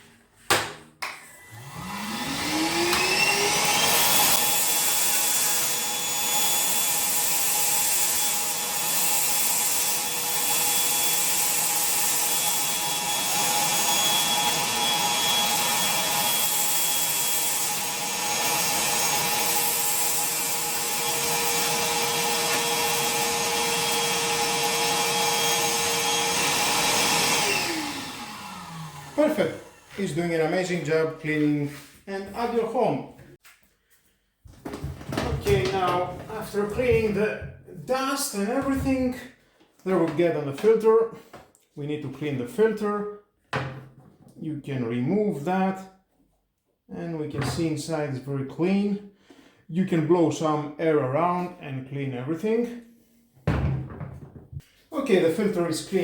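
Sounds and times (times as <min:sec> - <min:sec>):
vacuum cleaner motor whine: 0:01.3 - 0:30.1.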